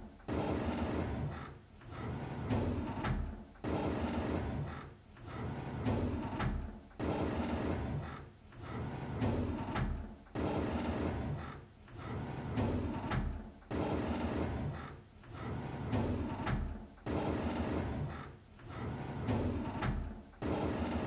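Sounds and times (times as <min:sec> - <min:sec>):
drawer sliding open: 0:15.4 - 0:21.0.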